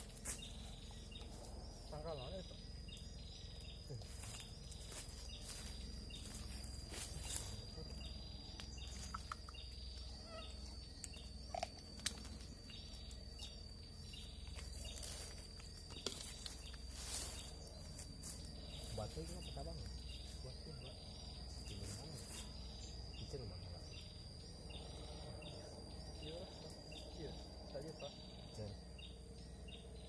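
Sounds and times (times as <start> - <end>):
rustling in undergrowth: 0.0 - 1.7, 3.8 - 8.0, 14.3 - 20.5
high insect whine: 0.0 - 30.0.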